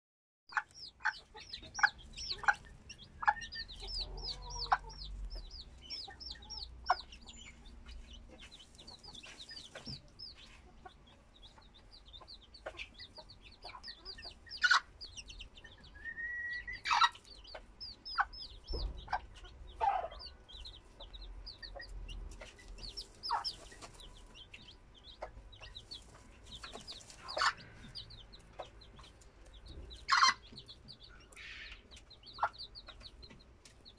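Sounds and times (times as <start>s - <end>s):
chicks peeping: 0.5s - 33.9s.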